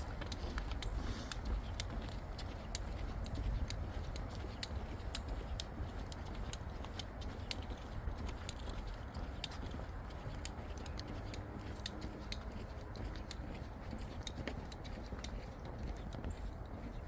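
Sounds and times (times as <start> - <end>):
distant highway traffic rumble: 0.0 - 17.0
sharp ticks and clicks: 0.0 - 17.0.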